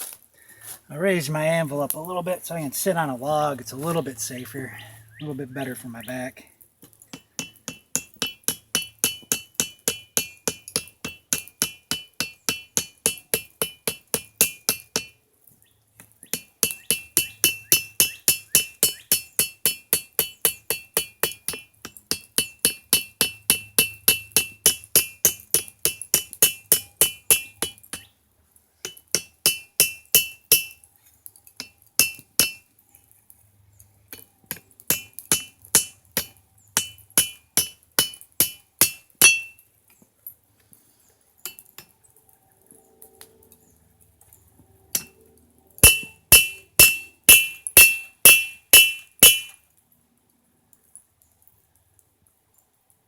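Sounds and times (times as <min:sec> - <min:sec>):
hammer striking steel on anvil: 0:07.1 - 0:15.2, 0:16.3 - 0:28.0, 0:28.8 - 0:30.8, 0:31.6 - 0:32.6, 0:34.1 - 0:39.6, 0:44.9 - 0:45.1, 0:45.8 - 0:49.6.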